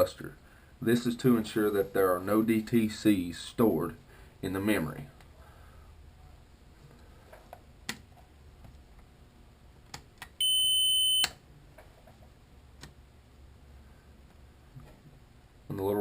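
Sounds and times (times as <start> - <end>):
high electronic beep: 10.4 - 11.3.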